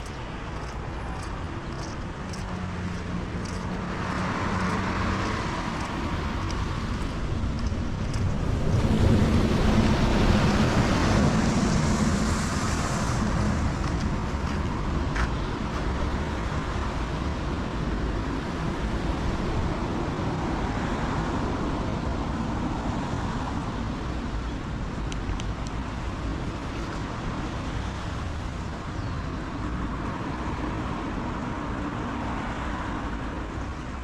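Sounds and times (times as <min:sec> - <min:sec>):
car passing on wet road: 0:02.6 - 0:15.4.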